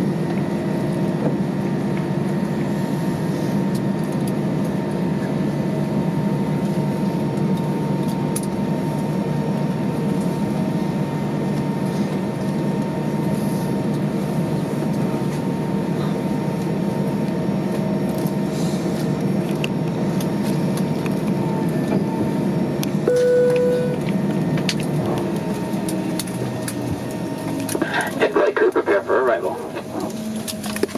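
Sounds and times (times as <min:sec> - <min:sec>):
airplane cabin hum: 0:00.0 - 0:30.9
short tone: 0:23.1 - 0:24.0.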